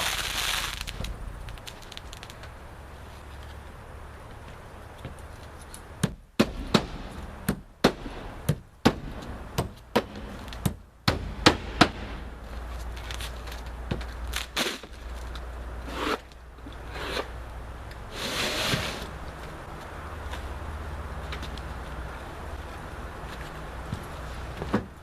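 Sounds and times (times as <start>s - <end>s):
nails hammered into roof: 6.0s - 12.3s.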